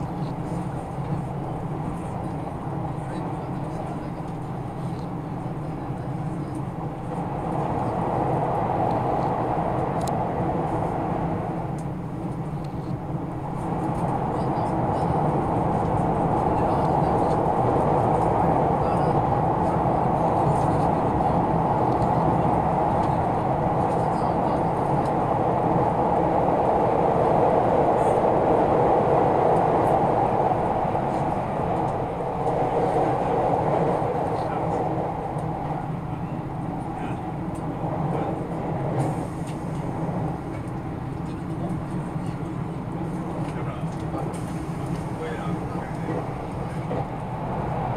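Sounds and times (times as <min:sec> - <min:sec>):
train rumbling at speed: 0:00.0 - 0:47.9
click: 0:10.0 - 0:10.2.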